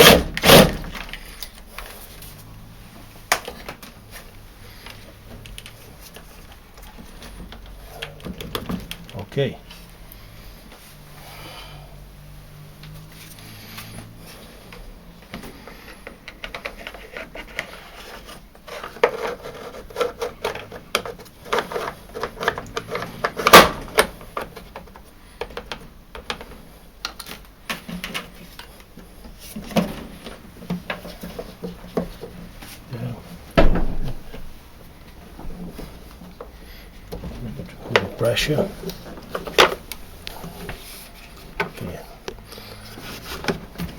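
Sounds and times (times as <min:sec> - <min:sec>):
plastic parts clicking and knocking: 0:04.8 - 0:09.2, 0:15.2 - 0:17.8, 0:18.6 - 0:32.4, 0:36.3 - 0:40.8.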